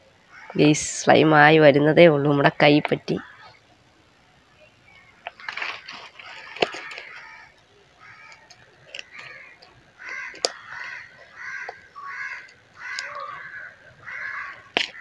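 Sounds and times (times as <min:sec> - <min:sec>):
crow cawing: 0:00.3 - 0:00.6, 0:03.2 - 0:03.6, 0:05.3 - 0:15.0
sharp clicks: 0:05.2 - 0:10.6.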